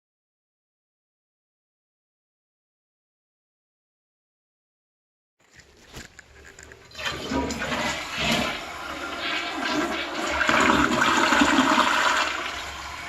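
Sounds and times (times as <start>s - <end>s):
toilet flushing: 6.8s - 13.0s.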